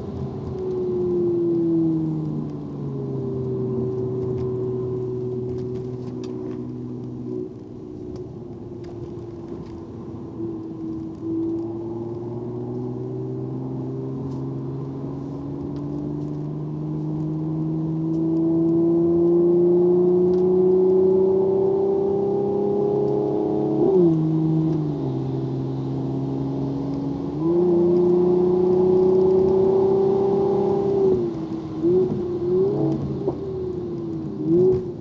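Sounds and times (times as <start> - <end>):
car engine accelerating: 0.0 - 35.0.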